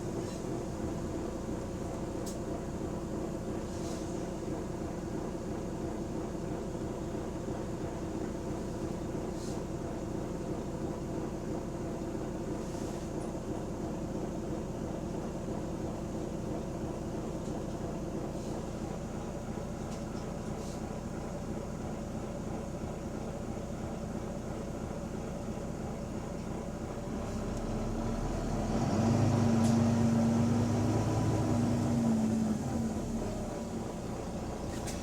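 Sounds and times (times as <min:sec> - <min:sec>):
bus engine drone: 0:00.0 - 0:35.0.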